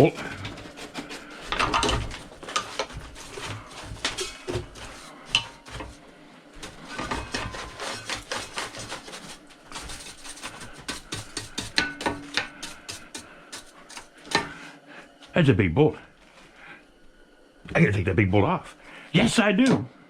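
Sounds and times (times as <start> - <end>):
metal tools clinking and clattering: 1.5 - 4.6, 5.3 - 5.9.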